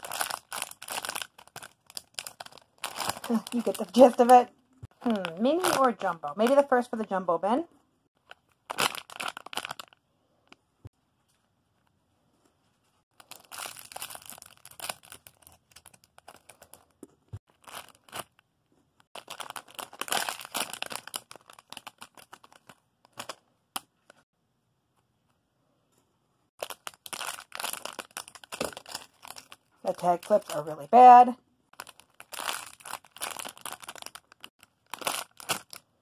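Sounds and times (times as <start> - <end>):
plastic packaging crinkling: 0.0 - 6.9, 8.2 - 10.0, 13.1 - 18.4, 19.1 - 24.2, 26.6 - 35.9.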